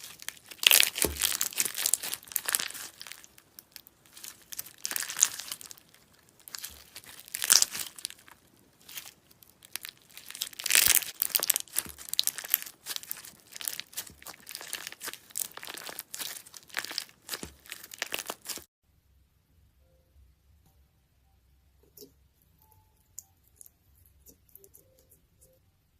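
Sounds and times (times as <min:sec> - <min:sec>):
slime crackling and tearing: 0:00.0 - 0:18.7.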